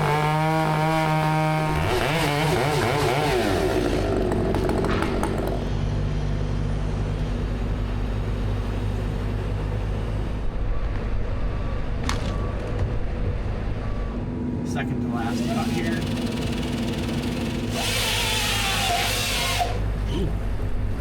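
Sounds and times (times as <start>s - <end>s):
chainsaw revving: 0.0s - 5.7s, 15.2s - 19.9s
low engine drone: 0.0s - 21.0s.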